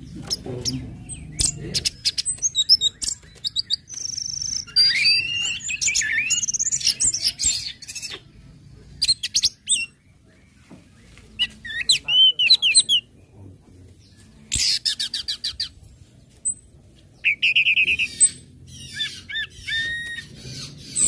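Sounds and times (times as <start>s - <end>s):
buzzy bird trill: 0.0s - 8.3s
whistled bird song phrases: 0.2s - 8.3s, 17.2s - 21.0s.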